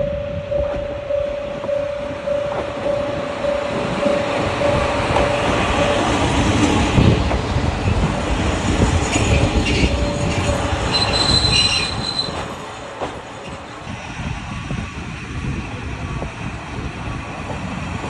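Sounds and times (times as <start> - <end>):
diesel railcar rumble: 0.0 - 18.0
wheels and brakes squealing: 2.3 - 7.1, 7.8 - 13.8.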